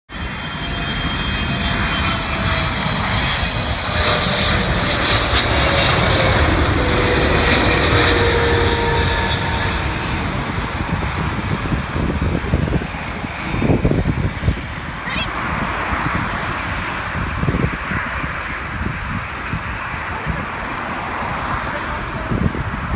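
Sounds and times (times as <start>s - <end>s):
jet engines roaring with whine: 0.1s - 22.9s.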